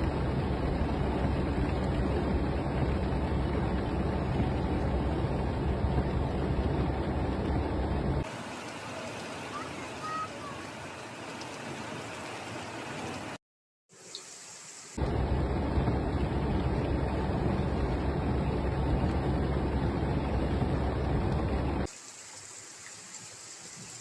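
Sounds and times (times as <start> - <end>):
heavy rain pouring: 0.0 - 13.4.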